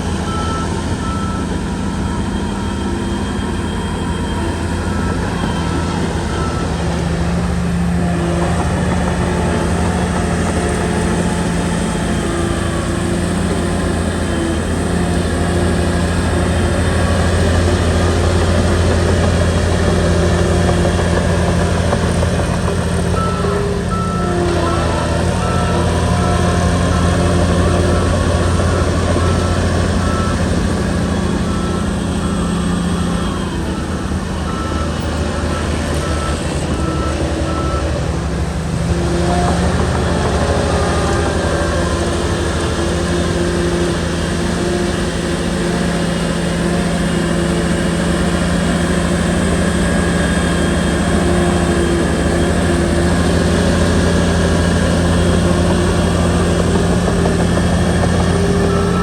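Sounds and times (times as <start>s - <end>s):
bulldozer diesel engine running: 0.0s - 59.0s
reversing alarm beeping: 0.0s - 59.0s.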